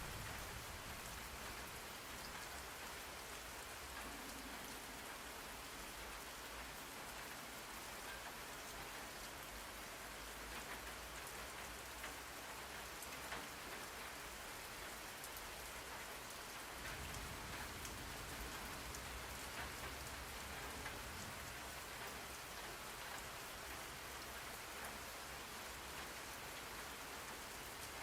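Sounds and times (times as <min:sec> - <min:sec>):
steady rain hiss: 0:00.0 - 0:28.0
raindrops ticking: 0:10.3 - 0:26.1.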